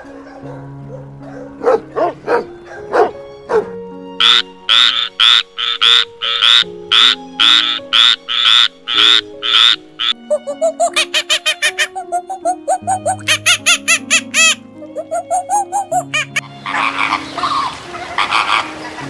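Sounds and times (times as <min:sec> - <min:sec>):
dog barking and yipping: 0:00.0 - 0:03.7
background music: 0:00.0 - 0:19.0
frog croaking: 0:04.2 - 0:18.8.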